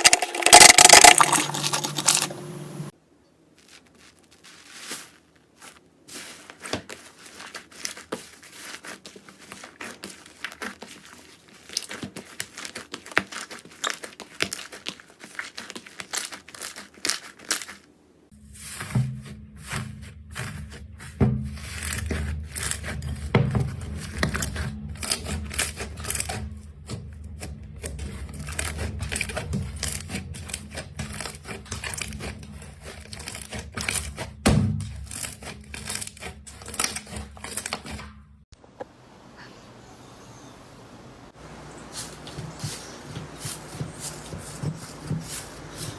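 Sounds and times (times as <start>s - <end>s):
slime crackling and popping: 0.0s - 2.3s, 6.6s - 17.8s, 28.3s - 34.2s.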